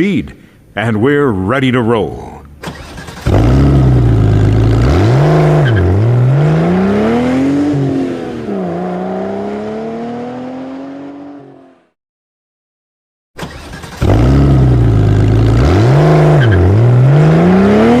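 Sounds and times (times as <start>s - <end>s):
car engine accelerating: 2.6s - 11.9s, 13.4s - 18.0s.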